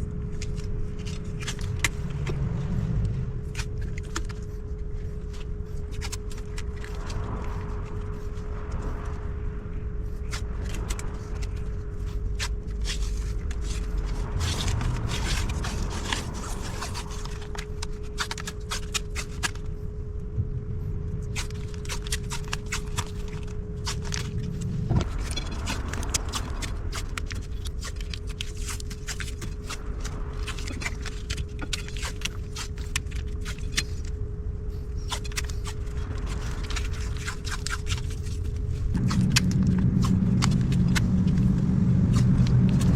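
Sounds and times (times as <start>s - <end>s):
masking tape crackling pulls: 0.0s - 9.3s, 10.0s - 19.9s, 21.2s - 42.9s
low steady hum: 0.0s - 42.9s.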